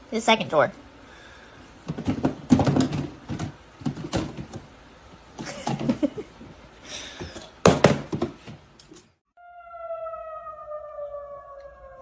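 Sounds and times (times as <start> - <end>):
drawer opening and rattling: 1.9 - 4.7.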